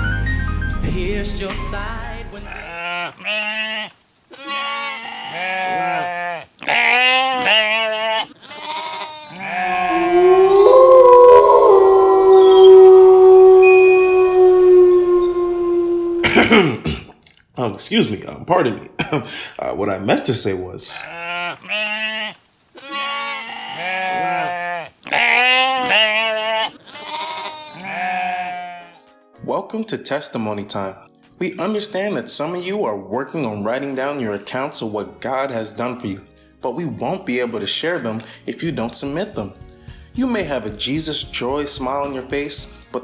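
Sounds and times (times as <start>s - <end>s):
sheep bleating: 2.5s - 11.4s, 21.0s - 29.1s
long horn-like note: 9.8s - 16.3s.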